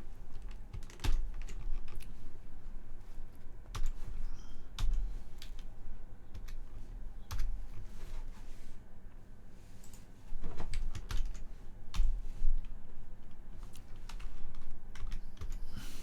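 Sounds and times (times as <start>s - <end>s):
typing on computer keyboard: 0.3s - 2.2s, 3.7s - 5.7s, 6.3s - 7.8s, 9.8s - 12.8s, 13.6s - 15.7s.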